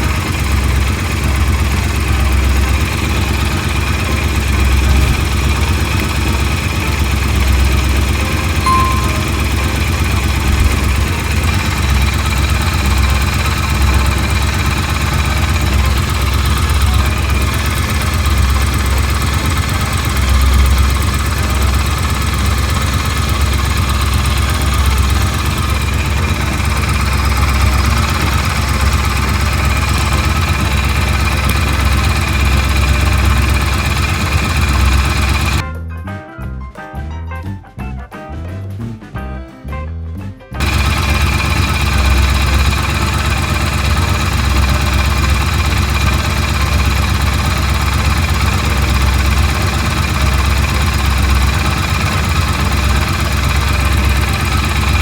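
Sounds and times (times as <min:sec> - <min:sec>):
motorcycle engine idling: 0:00.0 - 0:35.6, 0:40.6 - 0:55.0.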